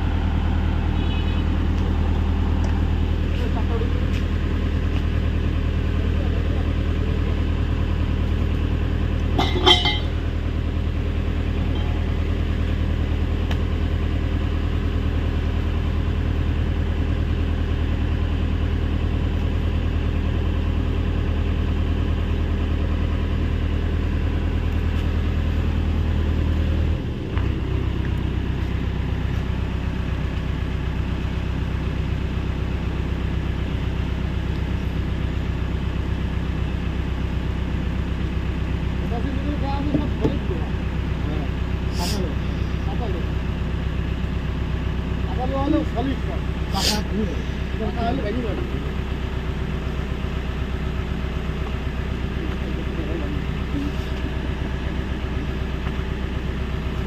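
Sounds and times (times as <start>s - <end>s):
excavator diesel engine running: 0.0s - 57.0s
high-pitched ring: 9.4s - 10.2s.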